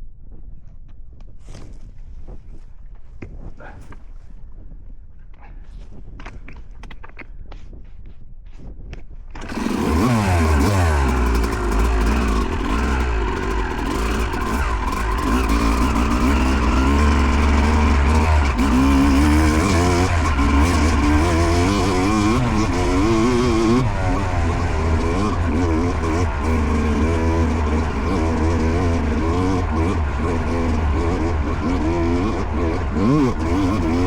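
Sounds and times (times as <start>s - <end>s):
dirt bike engine revving: 9.4s - 34.0s.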